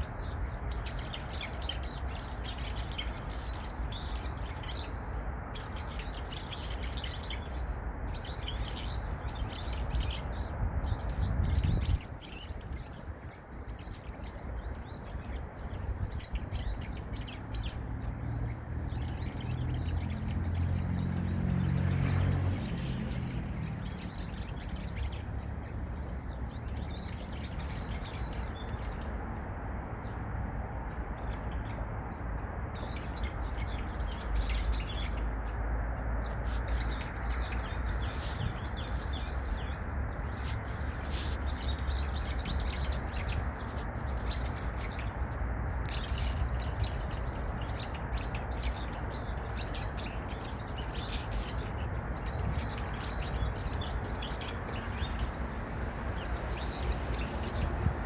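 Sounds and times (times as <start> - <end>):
birds chirping: 0.0 - 58.0
steady low rumble: 53.5 - 58.0.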